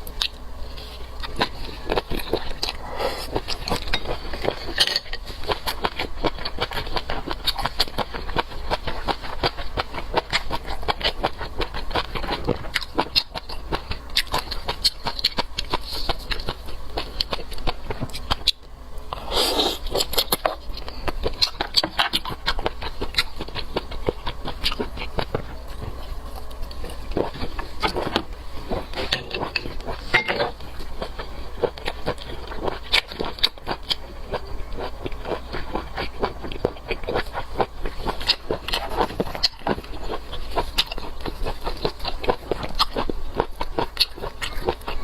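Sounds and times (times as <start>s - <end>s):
chewing with wet mouth clicks: 5.4s - 18.7s, 19.8s - 45.0s.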